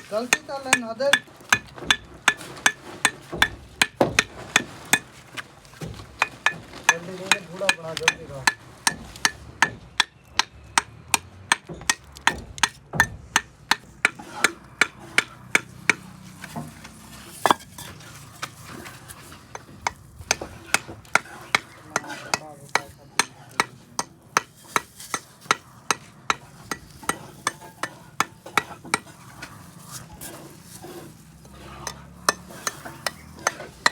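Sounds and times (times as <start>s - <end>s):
hammer strikes on metal: 0.0s - 5.1s, 6.2s - 16.1s, 19.5s - 29.1s, 31.9s - 33.9s.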